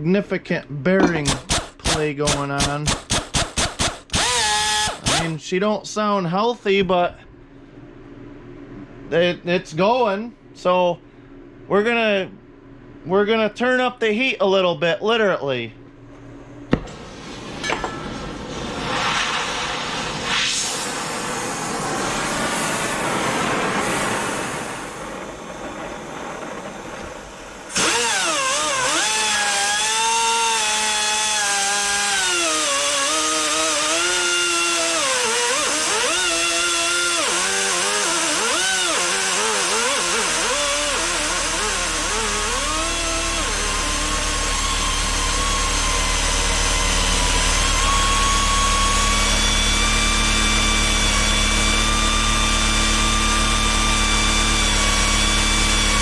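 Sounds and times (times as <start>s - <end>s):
angle grinder whining: 1.1s - 5.4s, 27.6s - 56.0s
low steady rumble: 4.2s - 27.8s.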